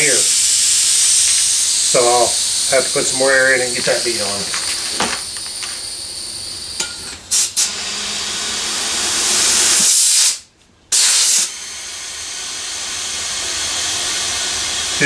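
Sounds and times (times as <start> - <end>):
compressed air hissing: 0.0 - 15.0.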